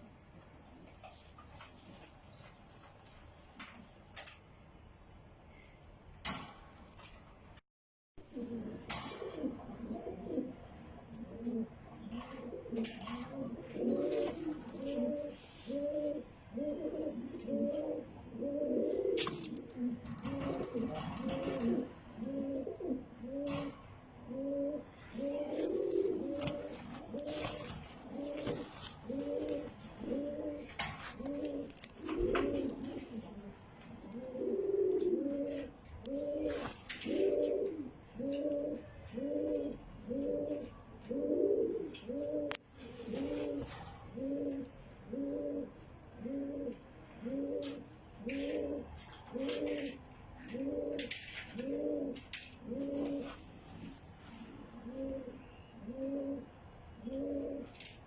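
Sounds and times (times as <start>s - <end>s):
pigeons cooing: 8.3s - 58.0s.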